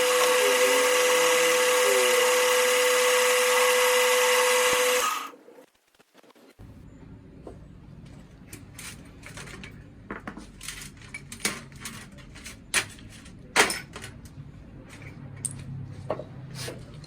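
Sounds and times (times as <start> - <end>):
metal tools clinking and knocking: 8.5 - 14.3.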